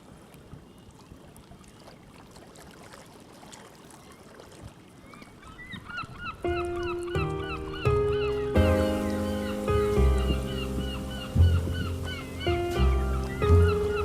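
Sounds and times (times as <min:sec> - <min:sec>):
gulls calling: 0:05.0 - 0:14.0
music: 0:06.4 - 0:14.0
steady background hiss: 0:08.4 - 0:14.0.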